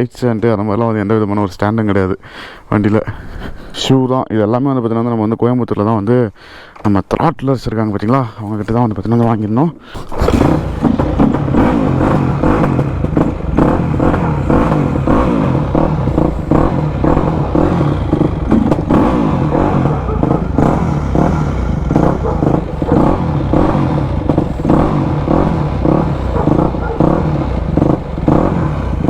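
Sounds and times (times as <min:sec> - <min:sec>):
dirt bike engine revving: 0:10.0 - 0:29.0.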